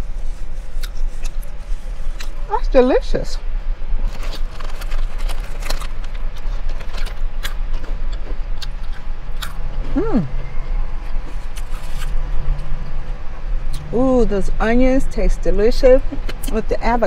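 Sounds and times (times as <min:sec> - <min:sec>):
person humming mm: 0:09.8 - 0:10.4.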